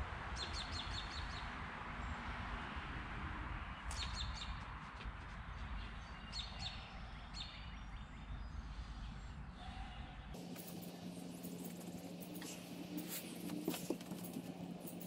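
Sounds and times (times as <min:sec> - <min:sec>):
outdoor background hiss: 0:10.4 - 0:15.0.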